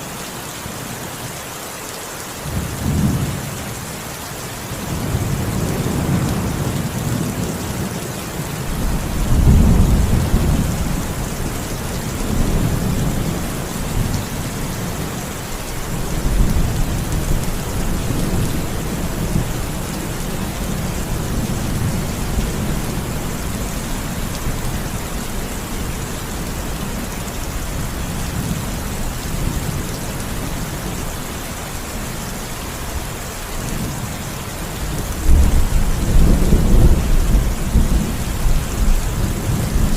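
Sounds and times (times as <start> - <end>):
steady rain falling: 0.0 - 39.9
low thunder rumbling: 8.7 - 31.1, 34.7 - 39.9.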